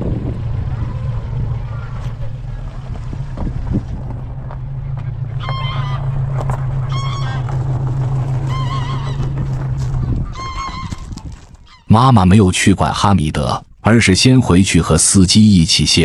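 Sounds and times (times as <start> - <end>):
truck engine idling: 0.0 - 12.0
geese honking: 4.1 - 12.1.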